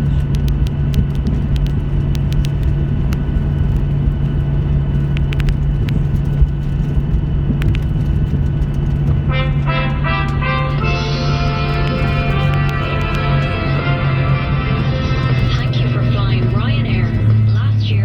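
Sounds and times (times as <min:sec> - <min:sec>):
sharp clicks: 0:00.0 - 0:09.0, 0:10.6 - 0:13.8
aircraft cabin rumble and hum: 0:00.0 - 0:18.0
music: 0:09.3 - 0:18.0.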